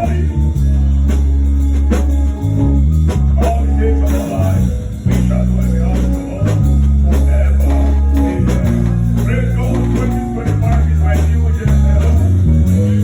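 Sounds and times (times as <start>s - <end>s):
bass line: 0.0s - 13.0s
drum kit beat: 0.0s - 13.0s
electric guitar: 0.0s - 13.0s.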